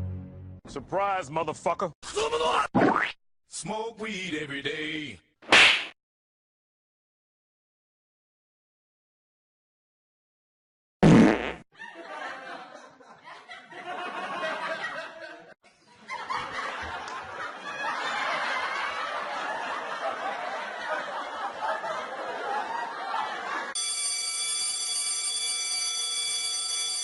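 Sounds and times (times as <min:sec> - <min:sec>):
group of people laughing: 0:11.8 - 0:23.8.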